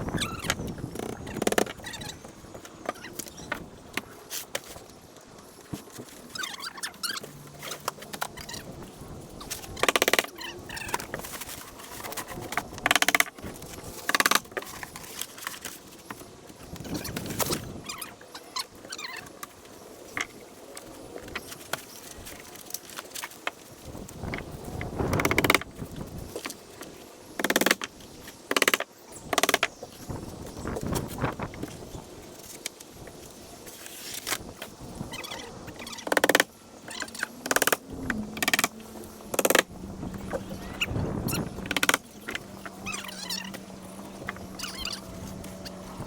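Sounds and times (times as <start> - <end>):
knocks and clicks on wood: 24.3 - 25.7, 27.4 - 27.9, 28.5 - 29.7, 36.0 - 36.5, 37.5 - 39.6, 41.6 - 42.4
birds calling faintly: 35.0 - 46.0.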